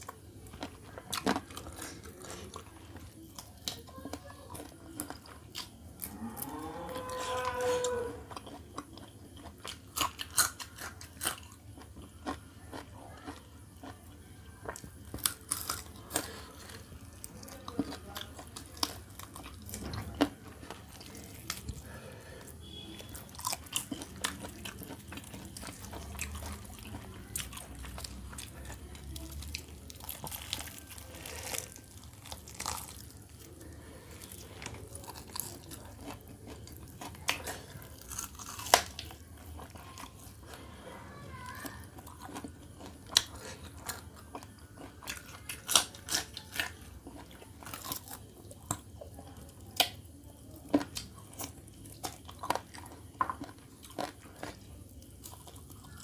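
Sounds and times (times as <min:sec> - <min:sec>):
chewing and biting: 0:00.0 - 0:40.6, 0:41.7 - 0:56.0
crisp skin crunching: 0:14.6 - 0:40.6, 0:41.8 - 0:48.9
meat tearing: 0:14.8 - 0:40.6, 0:41.9 - 0:48.9.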